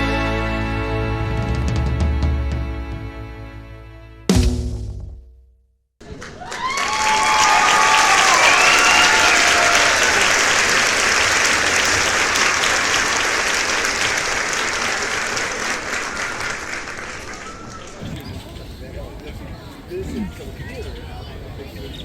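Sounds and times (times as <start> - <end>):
crowd applauding and cheering: 6.0 - 18.1
whoops: 6.4 - 10.5.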